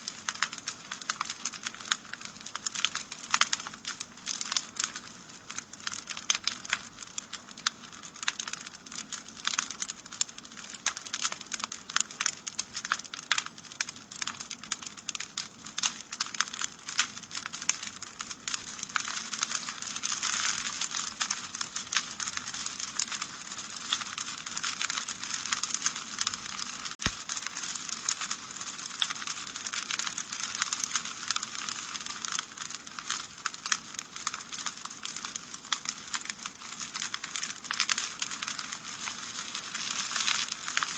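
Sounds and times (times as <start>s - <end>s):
wood fire crackling: 0.0s - 40.9s
fire hissing: 27.0s - 27.6s.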